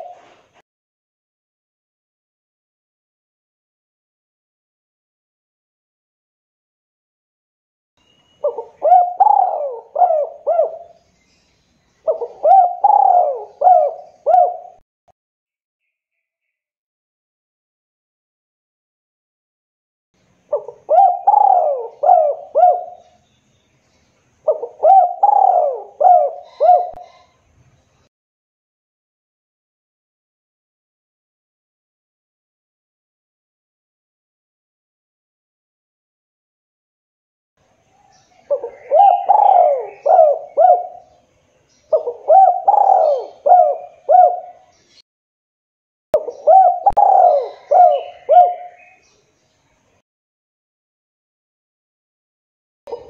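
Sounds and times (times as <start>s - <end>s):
dove cooing: 0.0s - 0.4s, 8.4s - 11.0s, 12.0s - 14.8s, 20.5s - 23.2s, 24.4s - 27.3s, 38.4s - 41.2s, 41.9s - 44.7s, 46.2s - 49.0s.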